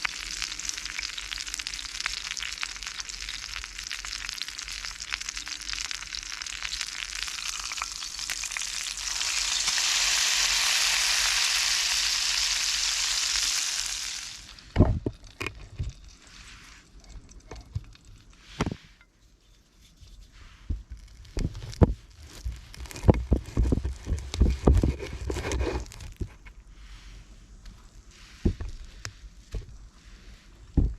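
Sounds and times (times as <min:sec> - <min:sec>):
food sizzling in a pan: 0:00.0 - 0:14.8.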